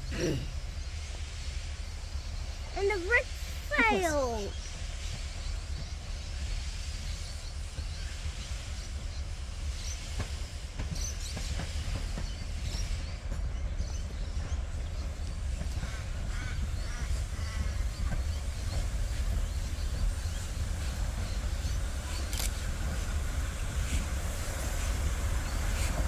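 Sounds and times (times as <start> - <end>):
locomotive engine rumbling: 0.0 - 5.7.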